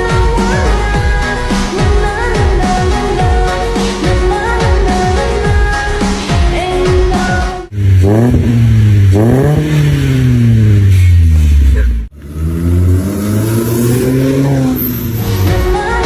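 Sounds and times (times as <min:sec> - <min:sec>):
car engine revving: 0:07.7 - 0:16.0.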